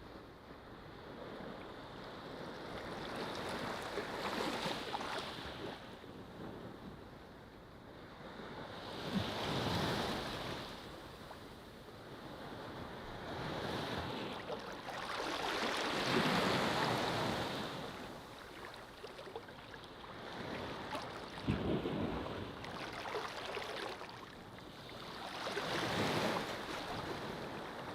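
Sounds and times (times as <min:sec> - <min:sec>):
ocean waves breaking: 0:13.3 - 0:27.9.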